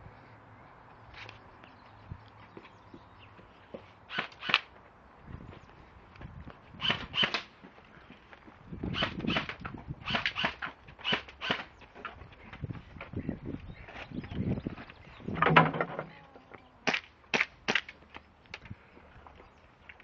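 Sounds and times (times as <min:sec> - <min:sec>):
airsoft guns firing sharp pops: 0:16.9 - 0:18.0.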